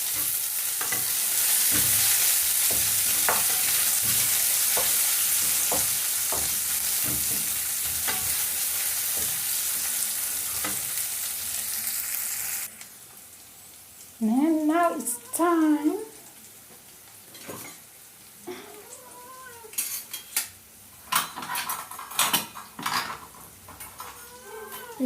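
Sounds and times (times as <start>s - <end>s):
vegetables sizzling in a frying pan: 0.0s - 25.0s
utensil knocking against pan: 2.6s - 8.4s.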